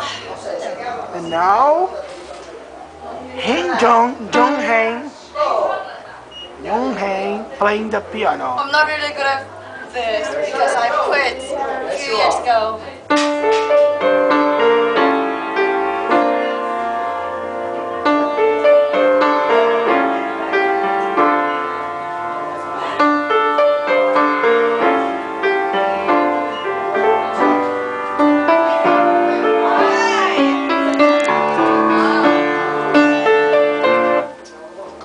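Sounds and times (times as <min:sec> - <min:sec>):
piano piece: 0:02.9 - 0:05.2, 0:10.3 - 0:34.8.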